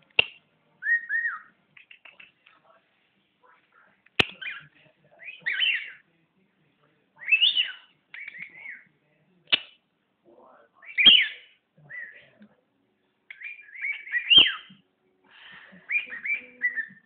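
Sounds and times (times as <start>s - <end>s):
bird whistling: 0.8s - 1.5s, 4.4s - 6.0s, 7.2s - 8.8s, 10.8s - 12.4s, 13.3s - 14.8s, 15.8s - 17.0s.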